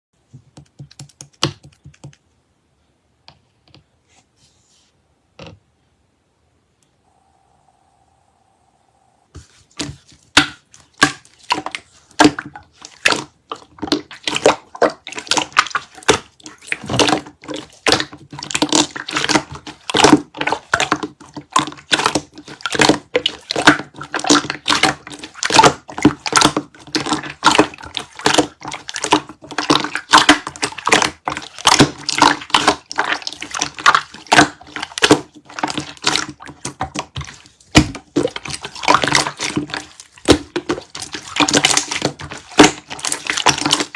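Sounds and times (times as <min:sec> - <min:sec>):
slime squished by hand: 0:09.8 - 0:43.9.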